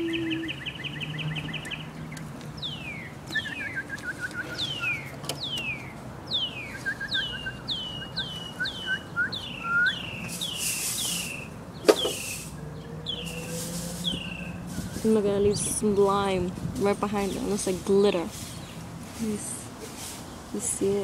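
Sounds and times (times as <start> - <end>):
rapid bird chirps: 0.0 - 15.1
songbirds whistling: 0.0 - 15.8.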